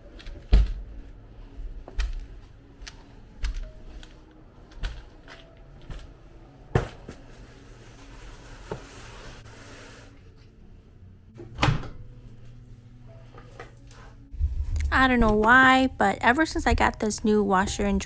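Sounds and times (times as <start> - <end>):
household items knocking and clunking: 6.7 - 7.3.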